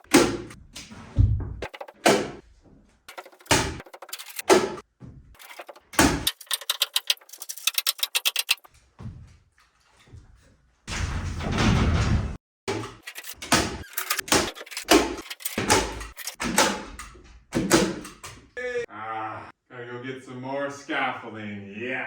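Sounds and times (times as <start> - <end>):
rattle of clicks: 3.1 - 4.5, 5.4 - 8.7, 13.0 - 16.4.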